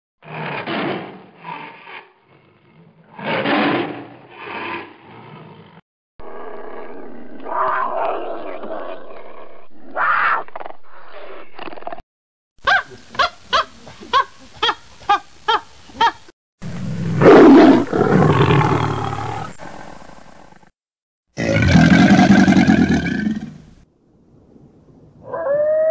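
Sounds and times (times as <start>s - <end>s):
tiger roaring: 0.2s - 11.8s, 16.6s - 20.7s, 21.4s - 23.7s
lion roaring and grunting: 0.2s - 12.0s, 16.7s - 20.7s, 21.4s - 23.6s
chimpanzee hooting: 12.6s - 16.2s.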